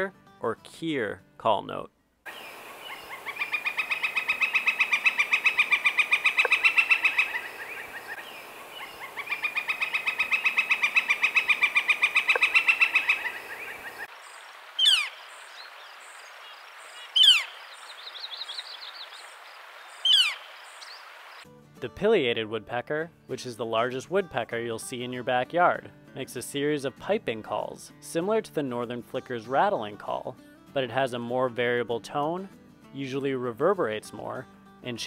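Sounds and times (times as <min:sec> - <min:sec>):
woodpecker rolling rattle call: 0:02.3 - 0:21.2
sharp falling bird call notes: 0:02.3 - 0:21.4.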